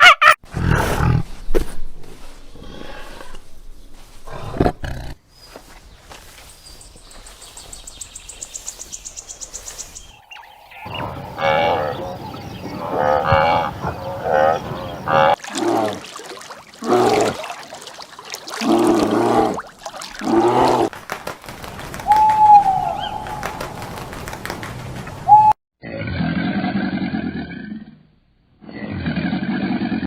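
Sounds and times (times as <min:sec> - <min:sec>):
livestock mooing: 0:10.8 - 0:15.4.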